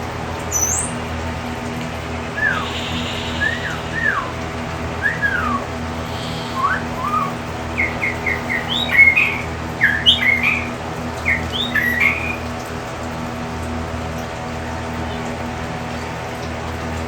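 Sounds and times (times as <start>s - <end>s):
low hum: 0.0s - 13.1s
birds whistling and chirping: 0.5s - 1.1s, 2.1s - 12.5s.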